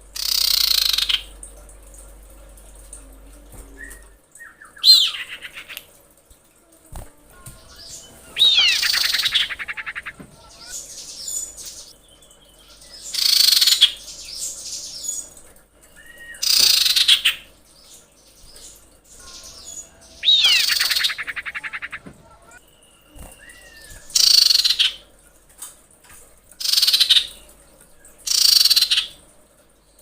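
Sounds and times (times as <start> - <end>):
bird whistled calls and trills: 0.2 - 1.3, 3.7 - 5.8, 7.5 - 11.9, 13.0 - 15.3, 15.9 - 17.4, 18.5 - 25.0, 26.6 - 27.4, 28.3 - 29.2
faint bird chirps: 7.3 - 14.0, 17.9 - 25.0.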